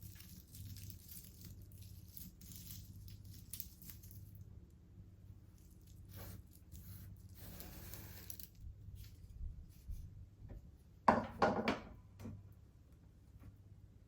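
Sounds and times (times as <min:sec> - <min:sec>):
kitchen knocks and clatters: 0:11.1 - 0:12.4.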